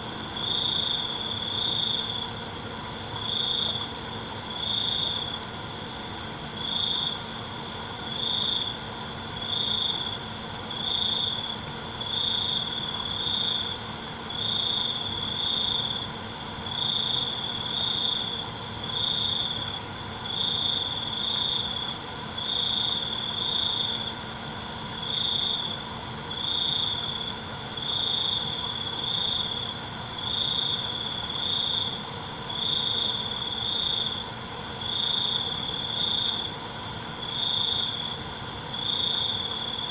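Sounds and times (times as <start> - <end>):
high-pitched insect drone: 0.0 - 6.0, 14.4 - 39.9
cricket chirping: 0.0 - 39.9
rapid insect trills: 0.0 - 39.9.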